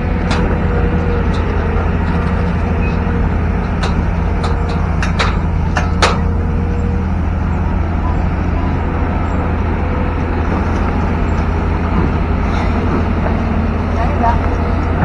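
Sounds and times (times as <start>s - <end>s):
excavator diesel engine running: 0.0s - 15.0s
sharp metallic knocks: 3.6s - 6.4s.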